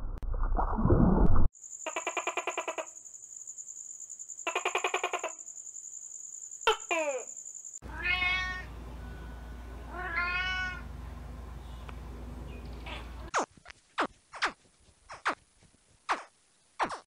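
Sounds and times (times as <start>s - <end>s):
cat meowing: 7.8s - 8.7s, 9.9s - 10.8s.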